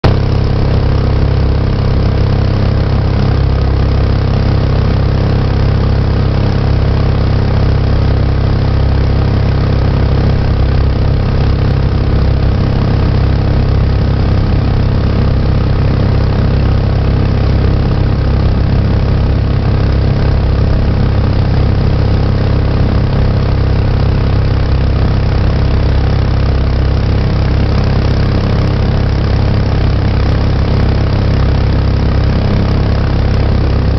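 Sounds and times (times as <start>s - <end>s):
boat engine running: 0.0s - 33.9s.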